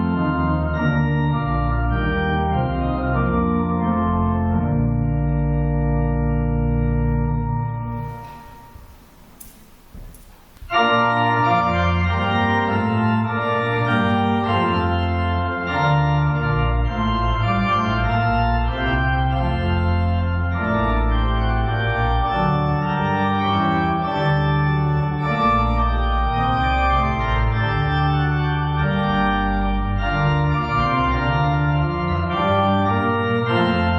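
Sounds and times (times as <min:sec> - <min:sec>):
organ chords: 0:00.0 - 0:33.9
faint room noise: 0:07.9 - 0:11.1.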